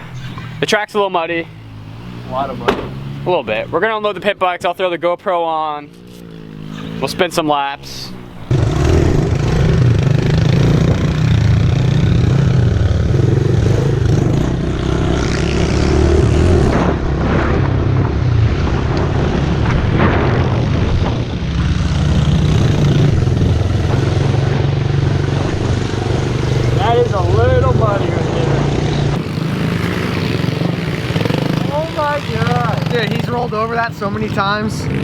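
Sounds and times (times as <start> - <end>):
small motorcycle engine running: 21.7 - 33.6.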